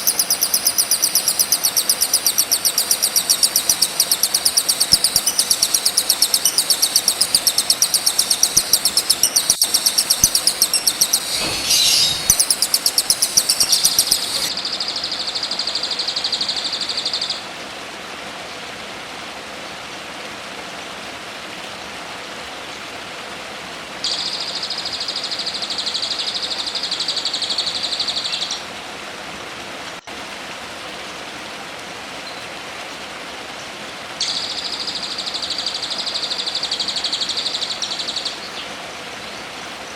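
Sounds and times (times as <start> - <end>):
buzzing bird trill: 0.0 - 14.5
high-pitched chattering bird trill: 0.0 - 14.5
background hiss: 0.0 - 14.9.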